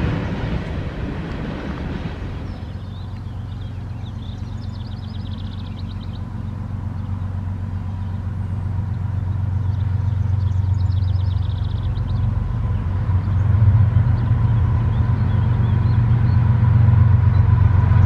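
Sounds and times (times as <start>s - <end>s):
diesel locomotive rumble: 0.0s - 18.0s
bird trill: 2.5s - 7.2s, 9.6s - 13.5s.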